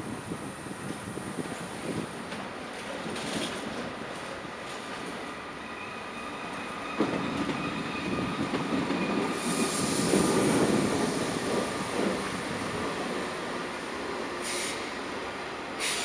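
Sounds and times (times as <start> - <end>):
train wheels rolling on tracks: 0.0 - 16.0
high hiss: 9.2 - 16.0.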